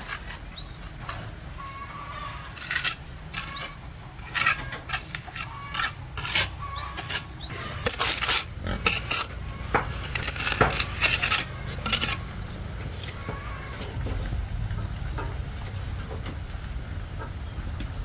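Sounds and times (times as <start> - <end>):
hard objects clinking and knocking: 7.5 - 14.0.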